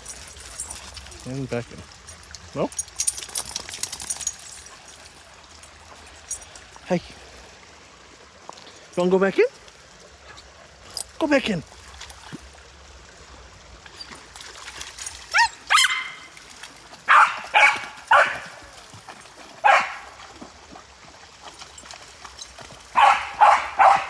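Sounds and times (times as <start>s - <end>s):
dog barking and yelping: 15.3s - 16.3s, 17.1s - 18.5s, 19.6s - 20.0s, 23.0s - 24.0s.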